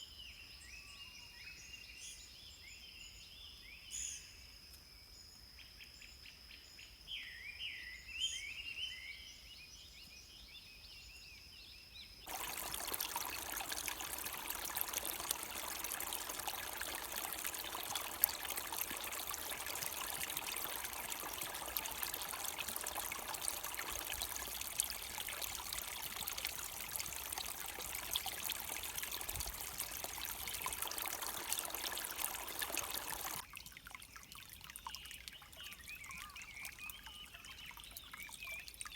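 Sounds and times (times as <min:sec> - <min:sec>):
small birds chirping: 0:12.3 - 0:33.4, 0:34.6 - 0:38.9
stream flowing and splashing: 0:12.3 - 0:38.9.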